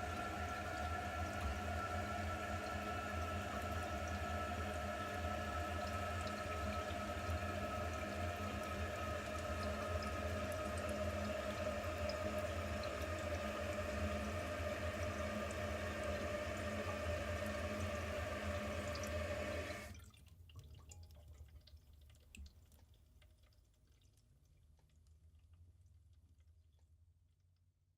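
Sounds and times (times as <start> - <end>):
toilet tank refilling: 0.0 - 24.4
faint water drips and trickles: 0.0 - 27.7.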